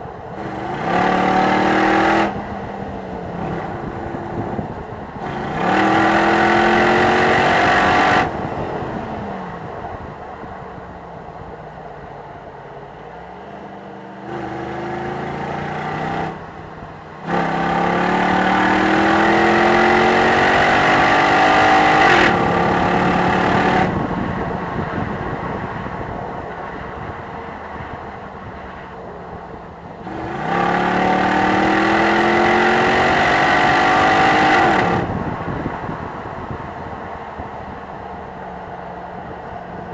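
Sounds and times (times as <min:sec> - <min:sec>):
car engine revving: 0:00.4 - 0:02.7, 0:03.3 - 0:08.5, 0:14.2 - 0:24.3, 0:30.0 - 0:35.3.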